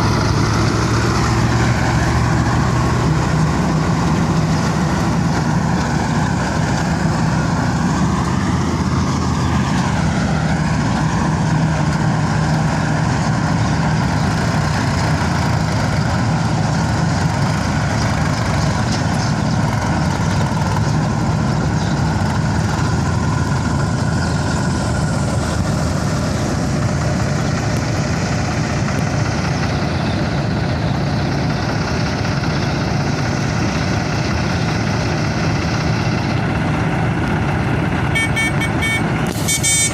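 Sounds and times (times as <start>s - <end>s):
diesel engines droning: 0.0s - 39.9s.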